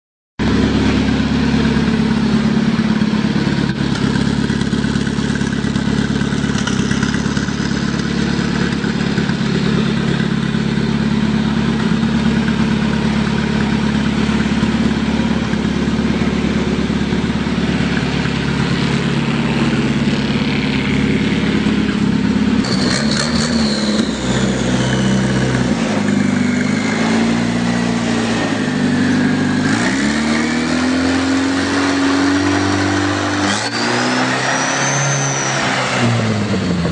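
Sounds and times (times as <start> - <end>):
tractor engine running: 0.4 - 34.0, 35.8 - 36.9.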